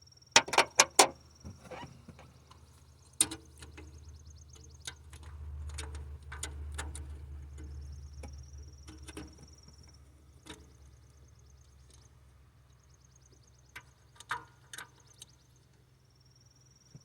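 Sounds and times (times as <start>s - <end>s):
tools clicking and knocking: 0.4s - 1.1s.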